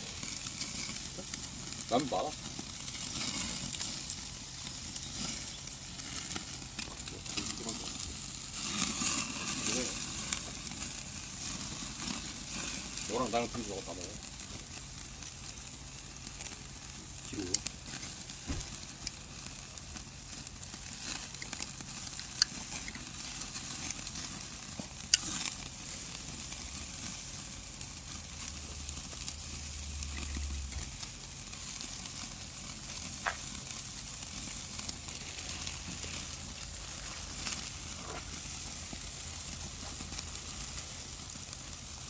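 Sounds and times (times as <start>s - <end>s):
meat sizzling on a grill: 0.0s - 42.0s
fat popping: 33.2s - 33.5s.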